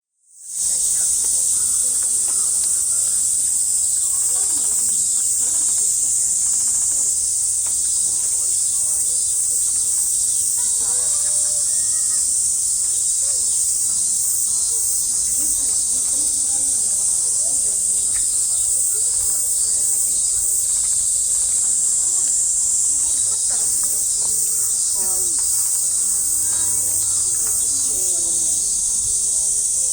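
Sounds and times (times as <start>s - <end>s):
faint distant voices: 0.3s - 29.9s
insects buzzing: 0.4s - 29.9s.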